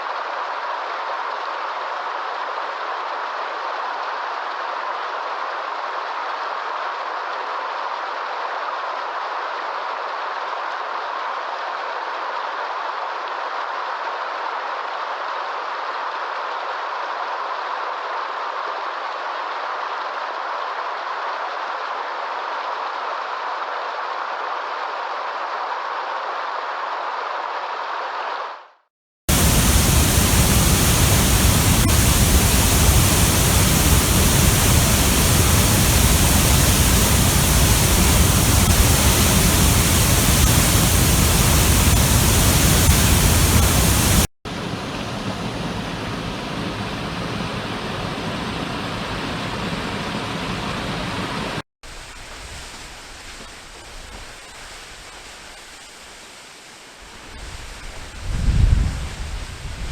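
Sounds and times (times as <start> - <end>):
rush of falling water: 29.3 - 59.9.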